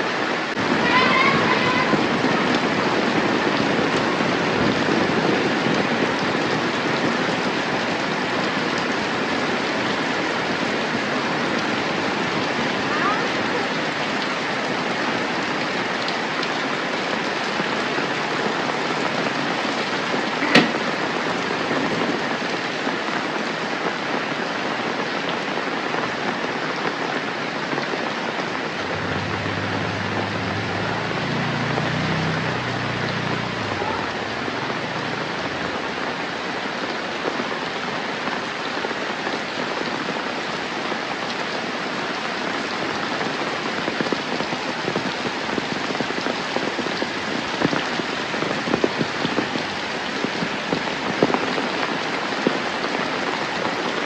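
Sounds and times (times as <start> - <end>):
steady rain falling: 0.0 - 54.0
low rumble: 28.8 - 31.9.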